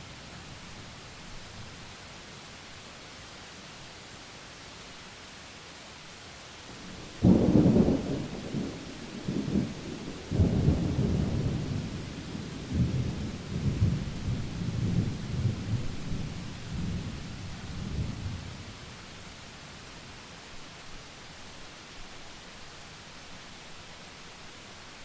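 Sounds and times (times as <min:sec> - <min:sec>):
rain hiss: 0:00.0 - 0:25.0
thunder rumbling: 0:06.8 - 0:18.5.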